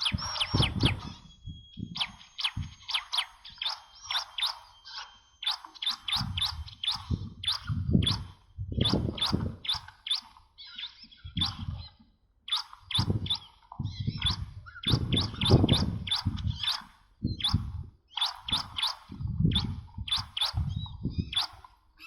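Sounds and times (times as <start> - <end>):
bird chirps rising steeply: 0.0 - 21.7.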